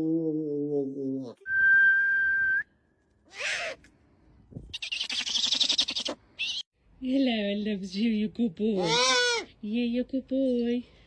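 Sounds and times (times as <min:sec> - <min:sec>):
whistled note: 0:01.5 - 0:02.9.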